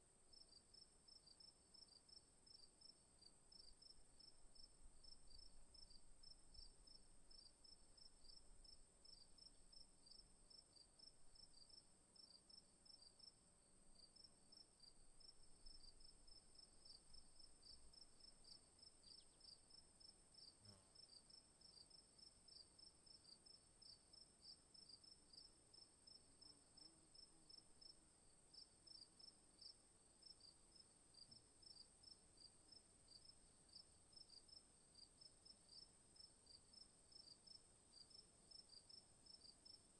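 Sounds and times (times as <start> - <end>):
crickets chirping: 0.3 - 13.4, 14.0 - 39.9.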